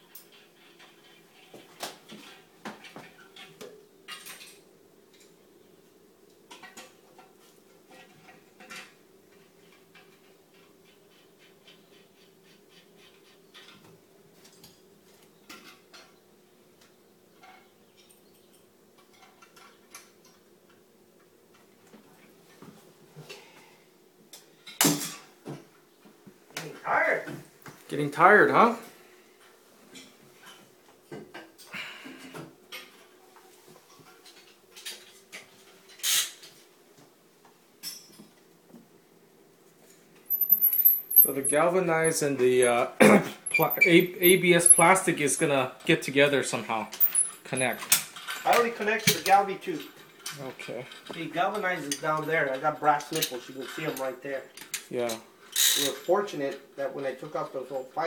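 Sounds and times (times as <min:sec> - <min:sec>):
tools and pipe parts clinking: 0:37.8 - 0:38.4, 0:40.2 - 0:42.8, 0:43.4 - 0:46.0, 0:46.9 - 0:57.3.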